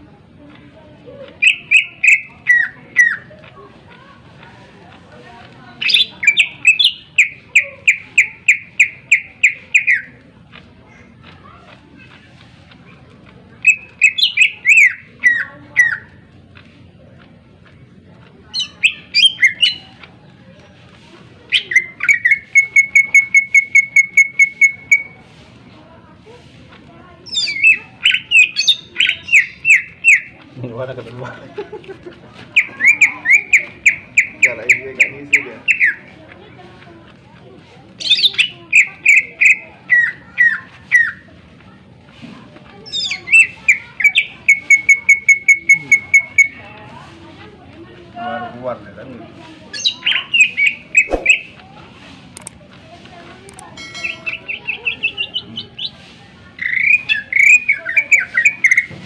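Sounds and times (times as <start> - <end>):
bird singing whistled notes: 1.4 - 3.2, 5.8 - 10.1, 13.6 - 16.0, 18.6 - 19.8, 21.5 - 25.2, 27.3 - 30.3, 32.6 - 36.0, 42.9 - 46.6, 49.8 - 51.6, 53.8 - 55.9, 56.6 - 58.9
bird singing sharp notes: 49.8 - 51.6
fast string of bird chips: 49.8 - 51.6.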